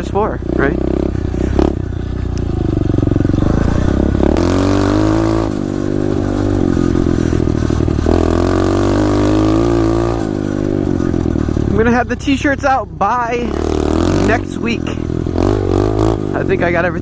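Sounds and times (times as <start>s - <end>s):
motorbike engine revving: 0.0s - 17.0s.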